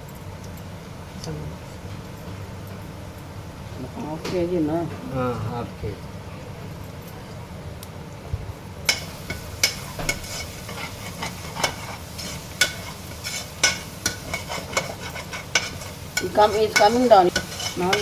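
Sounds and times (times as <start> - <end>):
spoon scraping in a pot: 8.9 - 18.0.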